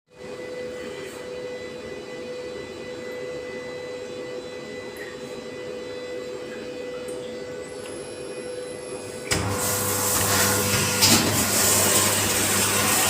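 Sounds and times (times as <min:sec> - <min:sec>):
machine humming with whine: 0:00.1 - 0:13.0.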